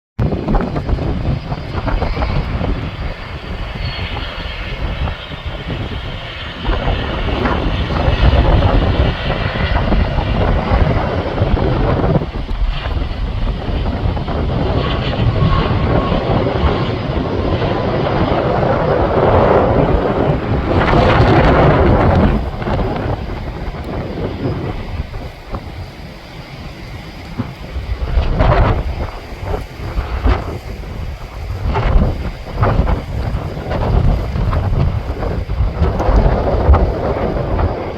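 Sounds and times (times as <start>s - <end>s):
jet engines rumbling: 0.2s - 37.9s
wind buffeting microphone: 0.2s - 37.9s.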